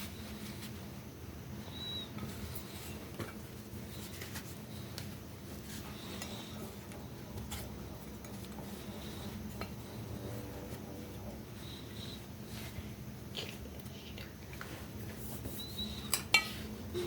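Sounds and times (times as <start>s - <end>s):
low steady hum: 0.0s - 17.0s
crockery clinking: 16.0s - 16.6s.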